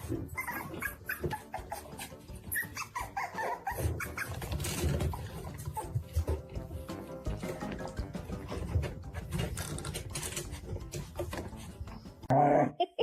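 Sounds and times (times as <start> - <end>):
dog whimpering: 0.0 - 6.0.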